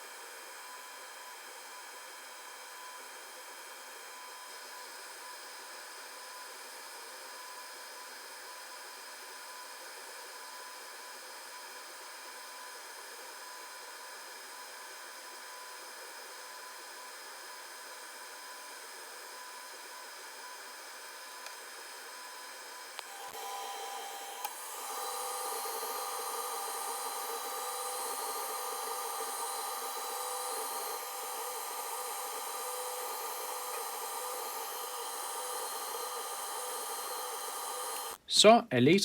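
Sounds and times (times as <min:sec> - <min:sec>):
fume extractor air hiss: 0:22.9 - 0:38.2
faint steady high tones: 0:23.0 - 0:38.2.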